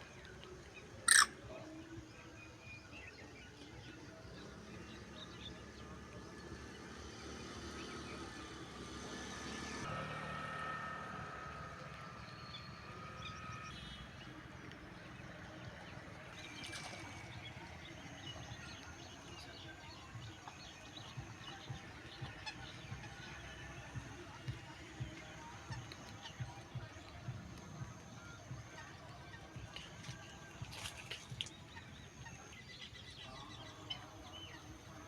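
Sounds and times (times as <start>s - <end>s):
faint bird chirps: 1.1s - 1.4s.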